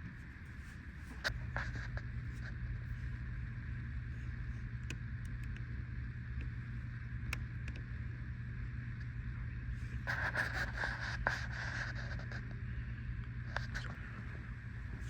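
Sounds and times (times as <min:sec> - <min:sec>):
low hum: 0:00.0 - 0:15.0
faint clicks: 0:04.8 - 0:05.7, 0:07.2 - 0:07.9.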